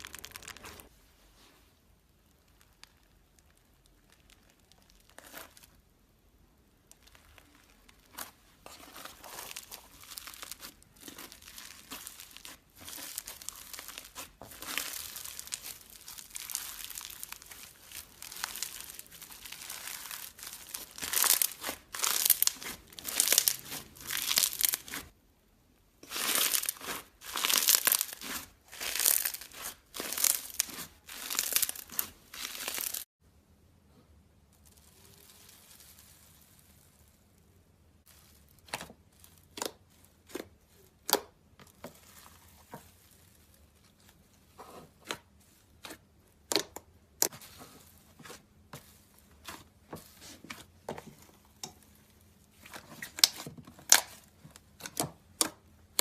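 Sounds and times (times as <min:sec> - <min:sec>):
crunchy slime crackling: 0:00.0 - 0:00.9, 0:02.1 - 0:05.9, 0:06.6 - 0:25.2, 0:26.0 - 0:33.1, 0:34.5 - 0:37.2, 0:38.0 - 0:56.0.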